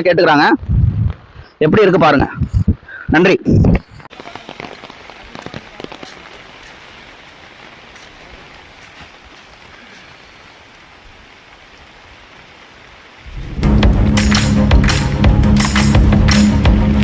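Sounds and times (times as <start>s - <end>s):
water hissing: 4.1s - 17.0s
loud music: 13.4s - 17.0s.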